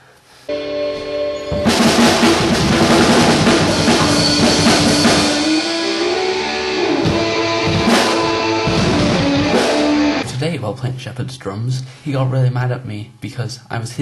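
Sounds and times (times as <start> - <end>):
rock music with guitar and drums: 0.5 - 10.2.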